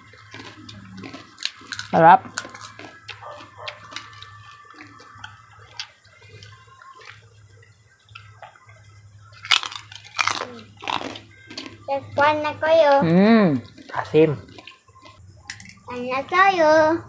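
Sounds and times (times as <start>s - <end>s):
crisp crunches of chewing: 0.0s - 11.8s, 13.6s - 15.2s.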